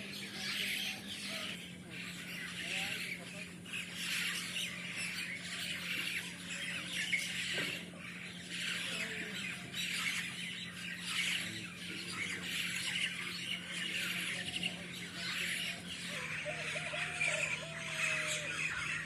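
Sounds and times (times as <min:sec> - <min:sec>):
flock of birds calling: 0:00.0 - 0:19.0
steady low hum: 0:00.0 - 0:19.0.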